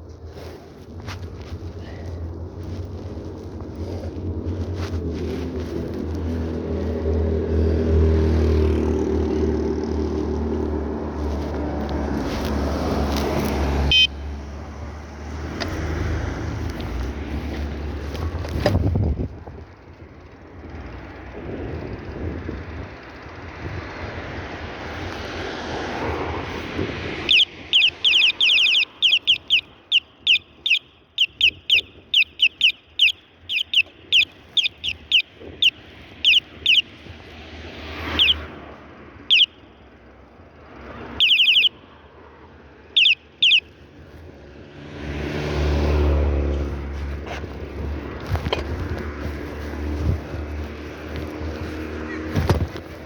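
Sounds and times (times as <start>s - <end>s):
passing vehicle rushing: 0.4s - 19.3s, 20.2s - 53.0s
high-pitched chirping: 27.3s - 37.0s, 38.1s - 38.5s, 39.3s - 39.7s, 41.2s - 41.9s, 42.9s - 43.7s.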